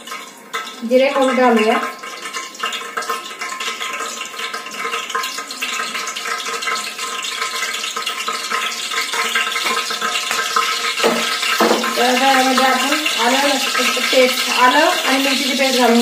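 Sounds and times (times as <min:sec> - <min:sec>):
seeds sizzling in hot oil: 0:00.0 - 0:16.0.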